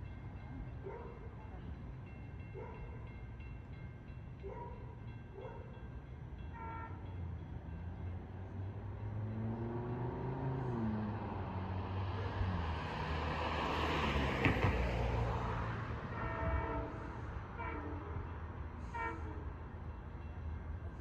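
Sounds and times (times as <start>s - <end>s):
train passing rumble: 0.0s - 21.0s
train horn blasts: 6.4s - 7.2s, 15.8s - 19.8s.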